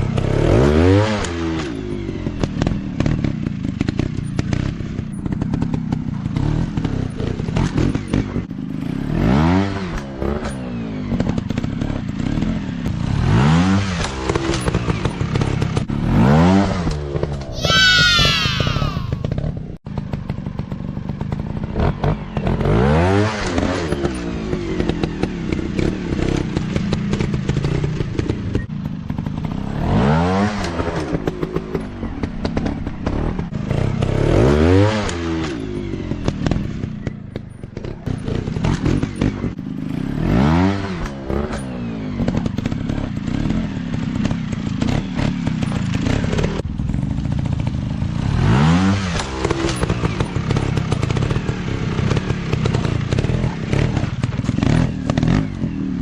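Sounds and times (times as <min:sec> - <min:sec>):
dirt bike engines revving: 0:00.0 - 0:37.1, 0:47.2 - 0:56.0.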